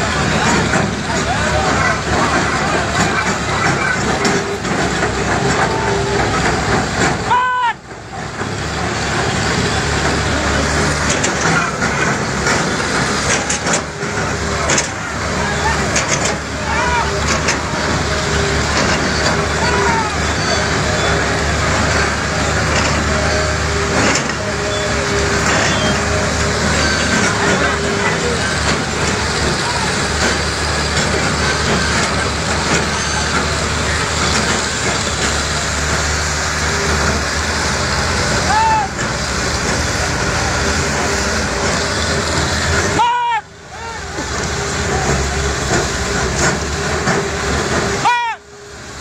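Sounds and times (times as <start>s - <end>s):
diesel engine hum: 0.0s - 49.0s
heavy machinery rumbling: 0.0s - 49.0s
loud rushing noise: 0.0s - 49.0s
sharp metal knocks and clanks: 9.9s - 19.6s, 21.6s - 37.2s.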